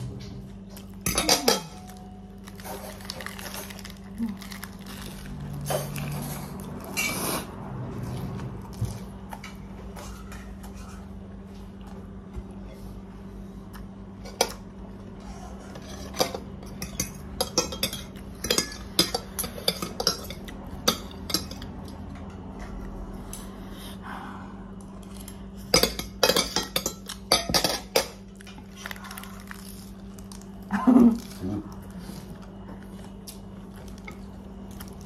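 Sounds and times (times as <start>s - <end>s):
steady low hum: 0.0s - 35.0s
utensils clinking against a bowl: 0.2s - 7.5s, 14.2s - 14.6s, 15.3s - 22.6s, 25.1s - 30.4s.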